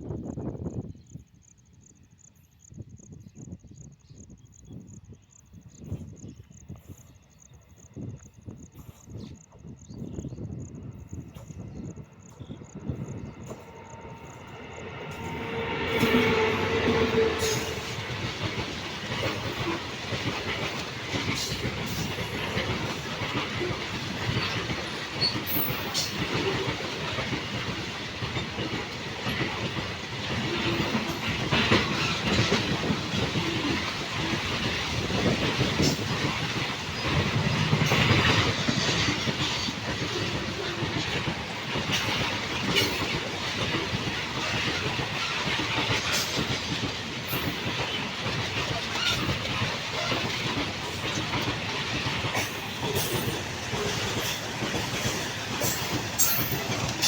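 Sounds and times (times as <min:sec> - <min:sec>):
train wagons rumbling past: 0:07.1 - 0:57.0
wheel clacks over rail joints: 0:14.4 - 0:57.0.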